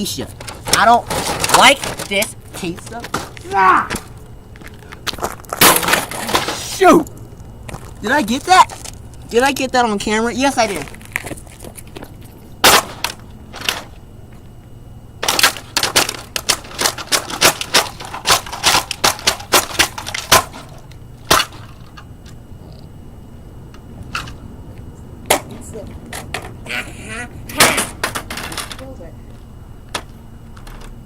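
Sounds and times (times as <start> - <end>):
toy dollhouse being smashed: 5.5 - 6.7, 12.6 - 13.9, 15.2 - 21.9, 27.5 - 28.8.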